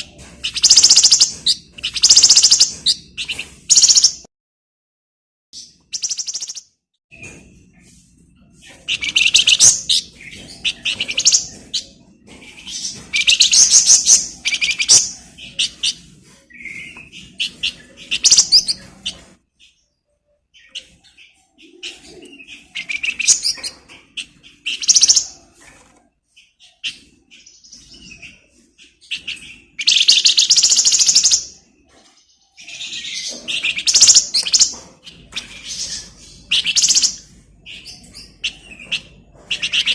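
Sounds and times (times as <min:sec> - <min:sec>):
songbird chattering trills: 0:00.0 - 0:04.2, 0:33.0 - 0:37.3.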